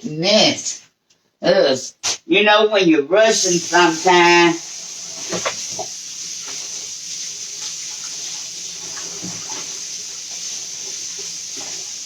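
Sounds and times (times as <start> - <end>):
hands washing under water: 3.4 - 12.0
tap running: 3.4 - 12.0.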